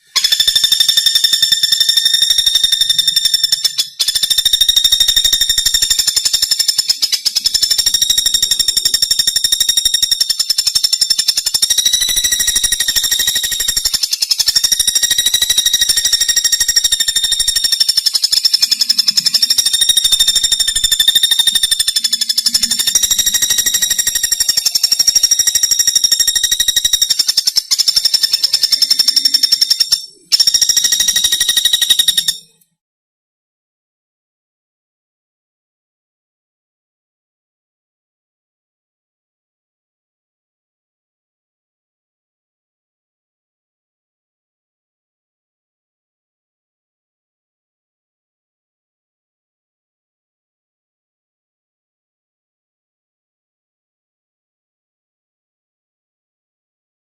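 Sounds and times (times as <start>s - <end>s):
woodpecker rattling trill: 0.0s - 32.6s.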